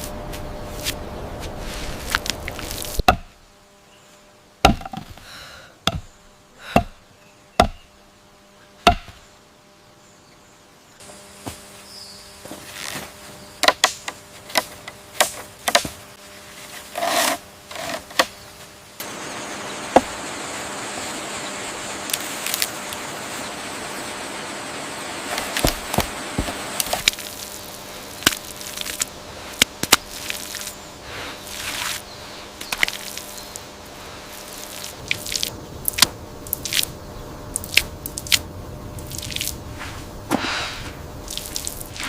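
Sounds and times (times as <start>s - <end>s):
steady hiss with ticks: 18.1s - 40.3s, 40.9s - 42.0s.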